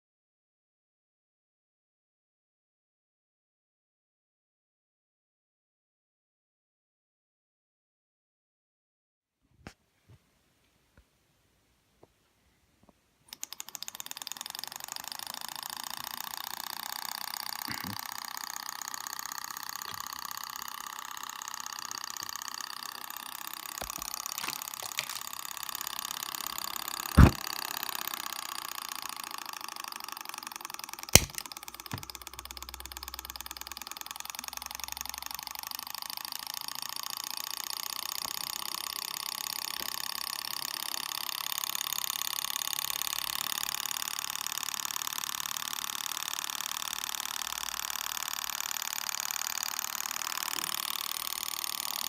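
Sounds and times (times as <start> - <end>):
model engine whirring: 13.3 - 52.0.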